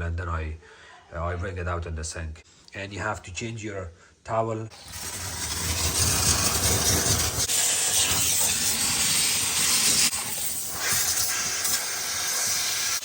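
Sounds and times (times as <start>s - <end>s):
steam cleaner hissing: 4.7s - 13.0s.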